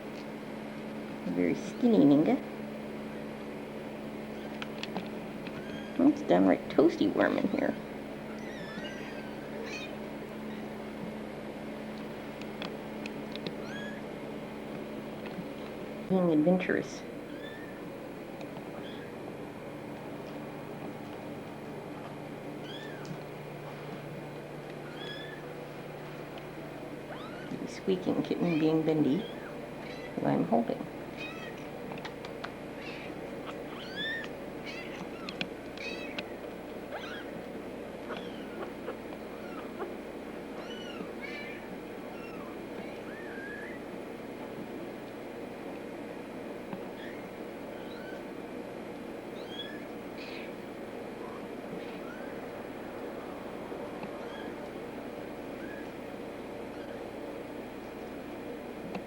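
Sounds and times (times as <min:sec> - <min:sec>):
steady low hum: 0:00.0 - 0:59.0
kittens squeaking: 0:04.3 - 0:04.7, 0:05.4 - 0:06.2, 0:08.2 - 0:10.8, 0:13.6 - 0:14.0, 0:17.2 - 0:17.9, 0:18.8 - 0:19.2, 0:22.6 - 0:23.2, 0:24.8 - 0:25.5, 0:27.1 - 0:27.6, 0:28.4 - 0:30.2, 0:31.2 - 0:31.7, 0:32.8 - 0:36.3, 0:36.9 - 0:37.4, 0:38.0 - 0:40.0, 0:40.6 - 0:43.8, 0:46.9 - 0:48.3, 0:49.3 - 0:50.6, 0:51.2 - 0:52.5, 0:54.2 - 0:54.6, 0:55.6 - 0:56.0, 0:56.7 - 0:57.0
small ticks: 0:31.2 - 0:36.3
kitten mewing: 0:32.8 - 0:36.2, 0:38.1 - 0:40.0, 0:40.6 - 0:43.8.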